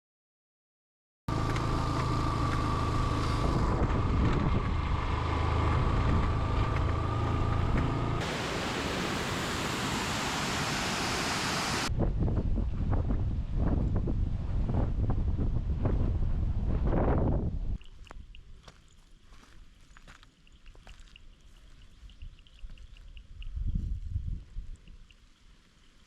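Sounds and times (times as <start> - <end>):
low engine-like drone: 1.3 - 11.9
wind on microphone: 3.2 - 7.0, 9.2 - 18.4, 22.0 - 25.2
even rushing hiss: 8.2 - 11.9
scattered ticks: 17.8 - 19.2, 19.8 - 26.0.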